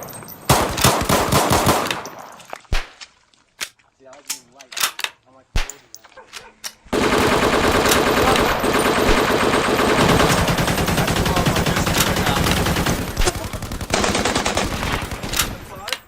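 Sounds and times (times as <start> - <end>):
machine-gun fire: 0.5 - 2.2, 6.9 - 15.8.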